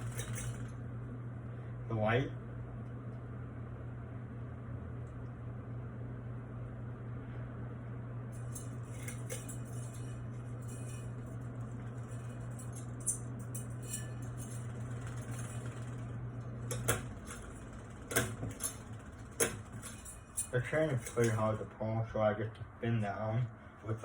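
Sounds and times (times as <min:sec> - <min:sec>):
pull chain clicking: 0:00.0 - 0:00.8, 0:08.4 - 0:21.7
ceiling fan motor humming: 0:00.0 - 0:24.0.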